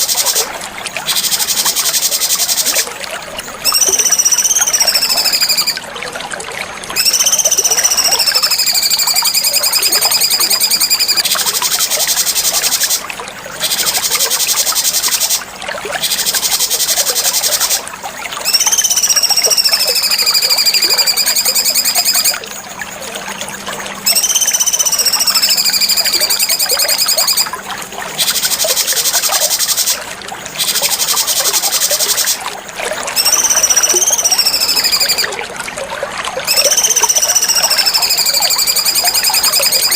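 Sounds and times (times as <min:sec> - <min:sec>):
bird whistling and trilling: 0:01.0 - 0:02.9, 0:03.6 - 0:05.8, 0:07.0 - 0:13.0, 0:18.4 - 0:22.4, 0:24.0 - 0:27.5, 0:33.1 - 0:35.3, 0:36.5 - 0:39.9.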